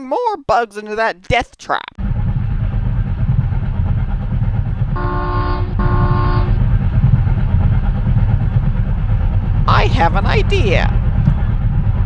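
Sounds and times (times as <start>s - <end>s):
train rumbling: 2.0s - 12.0s
train horn blasts: 5.0s - 6.6s.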